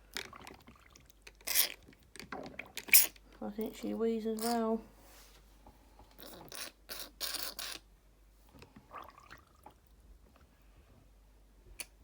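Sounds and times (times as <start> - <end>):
water spurting: 8.8 - 9.8
water gurgling: 8.9 - 9.9.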